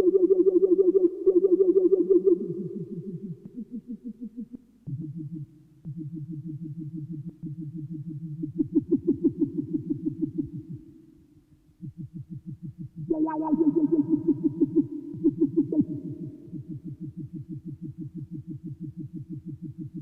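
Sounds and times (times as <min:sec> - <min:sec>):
synthesizer pulsing low note: 0:04.9 - 0:10.8, 0:11.8 - 0:20.0.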